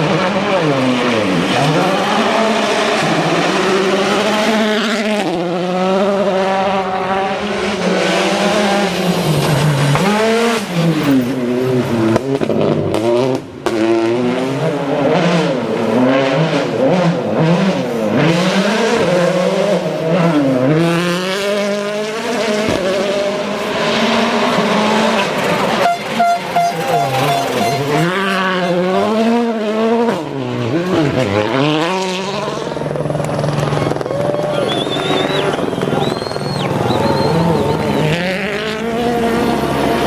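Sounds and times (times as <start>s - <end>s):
rally car engines revving: 0.0s - 40.0s.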